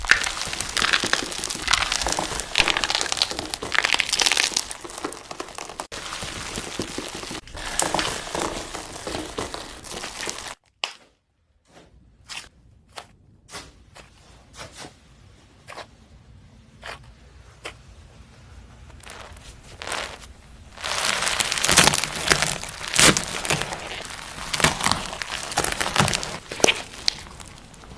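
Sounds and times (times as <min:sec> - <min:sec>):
slime squeezed and kneaded: 0:00.0 - 0:10.6, 0:18.9 - 0:27.9.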